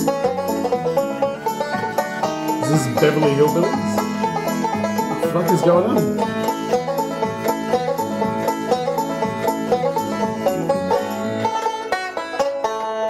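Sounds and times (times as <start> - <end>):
plucked banjo music: 0.0 - 13.0.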